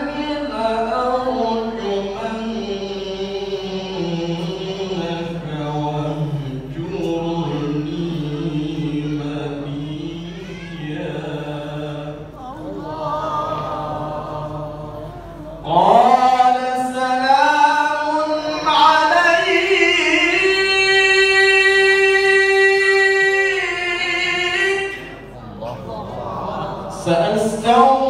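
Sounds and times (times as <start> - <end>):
man chanting recitation: 0.0 - 28.0.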